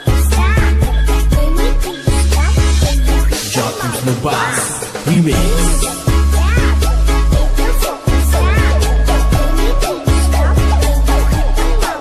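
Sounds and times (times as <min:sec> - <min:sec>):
dance music with heavy bass: 0:00.0 - 0:12.0.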